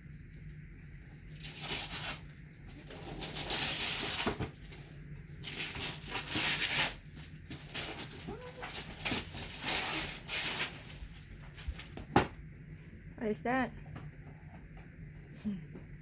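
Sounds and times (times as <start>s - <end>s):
wrapping paper tearing and crumpling: 1.2s - 12.0s.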